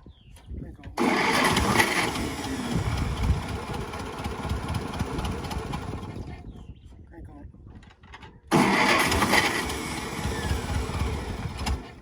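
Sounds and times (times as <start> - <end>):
engine cranking and running unevenly: 1.0 - 6.4, 8.5 - 12.0.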